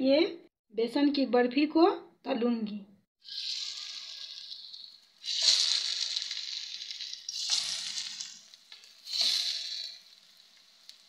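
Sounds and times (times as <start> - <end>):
sweets sizzling in hot oil: 3.2 - 11.0.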